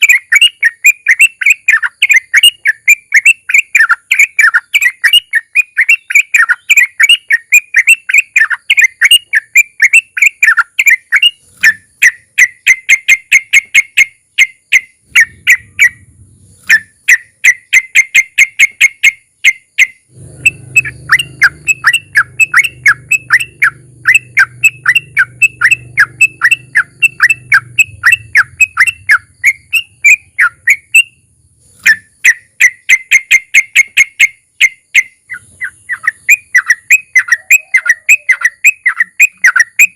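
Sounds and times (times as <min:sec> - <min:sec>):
bulbul singing rapid trills: 0:00.0 - 0:39.9
faint low rumble: 0:15.0 - 0:17.0, 0:20.1 - 0:31.8.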